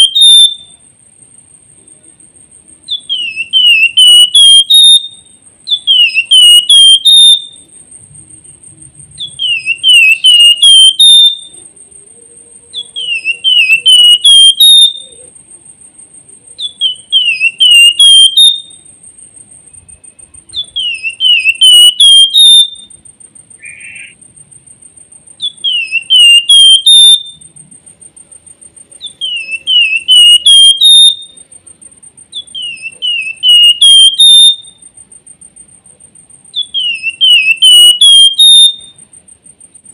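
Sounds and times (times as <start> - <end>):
bird whistled song: 0.0 - 0.9, 2.8 - 7.8, 9.1 - 15.3, 16.5 - 19.0, 19.7 - 23.0, 23.6 - 24.2, 25.4 - 27.6, 29.0 - 31.5, 32.3 - 34.9, 36.5 - 39.1.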